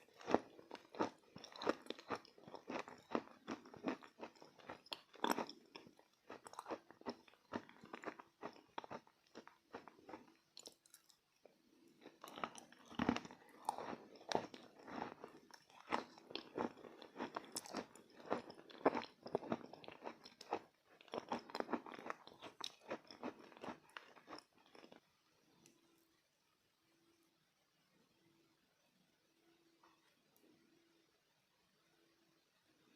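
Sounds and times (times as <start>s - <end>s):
chalk crunching while chewed: 0.0s - 11.2s, 12.0s - 25.0s.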